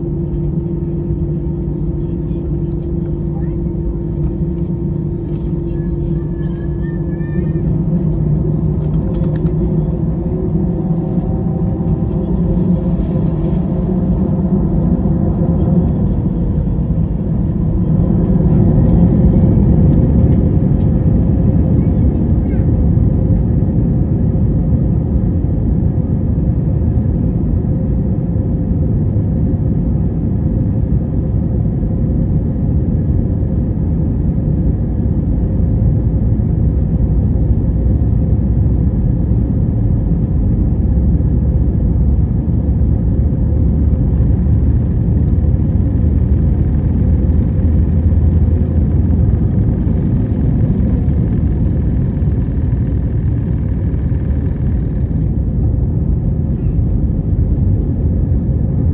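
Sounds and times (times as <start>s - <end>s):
jet engine cabin roar: 0.0s - 58.9s
faint steady hum: 40.0s - 58.9s.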